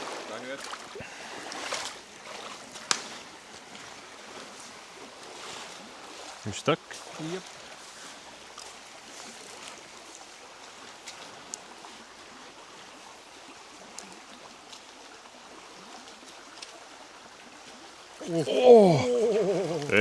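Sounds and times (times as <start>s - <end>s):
river water rushing: 0.0s - 6.4s, 18.2s - 20.0s.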